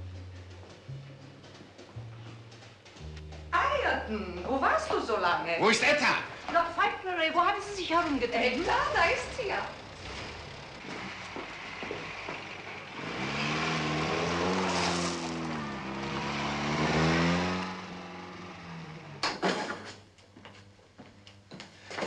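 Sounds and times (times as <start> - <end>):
car engine driving off: 5.9 - 20.0.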